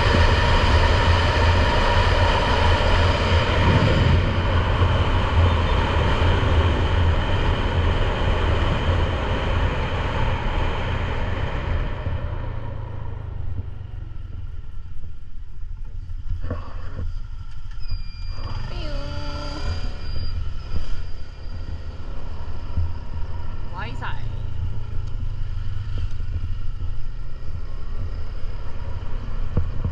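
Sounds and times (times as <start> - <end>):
motorcycle engine hum: 0.0 - 17.8, 18.4 - 29.9
wind and road noise: 0.0 - 29.9
thin high tone: 17.7 - 22.1.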